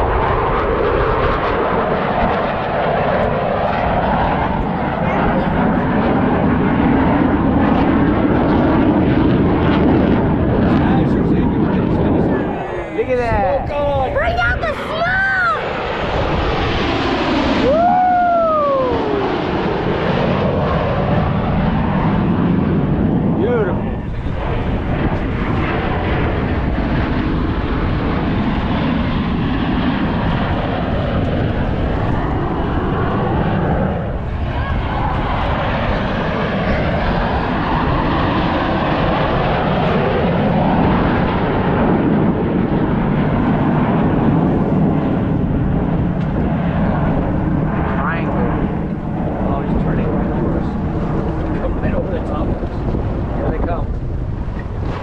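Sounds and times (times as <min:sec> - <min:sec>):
jet aircraft roaring overhead: 0:00.0 - 0:55.0
spectator whooping: 0:14.2 - 0:15.7, 0:17.6 - 0:19.4.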